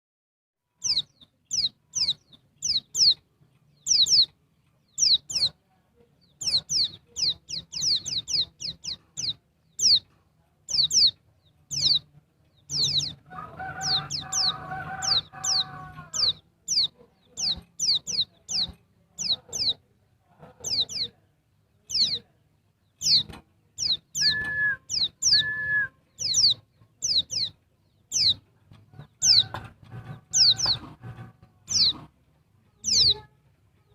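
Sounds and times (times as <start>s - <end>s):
lower steady bird call: 0.7s - 10.1s, 20.6s - 32.0s, 32.8s - 33.9s
bird high falling chirps: 23.0s - 28.4s.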